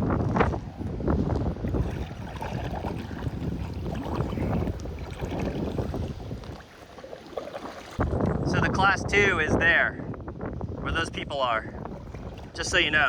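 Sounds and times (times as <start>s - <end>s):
water splashing and lapping: 0.0s - 8.4s, 11.5s - 13.0s
wind rumbling on microphone: 0.0s - 13.0s.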